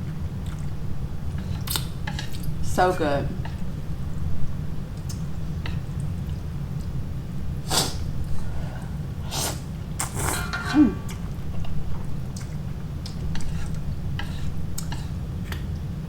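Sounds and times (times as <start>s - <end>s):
steady low hum: 0.0s - 16.0s
person slurping noodles: 7.7s - 8.1s, 9.2s - 10.4s.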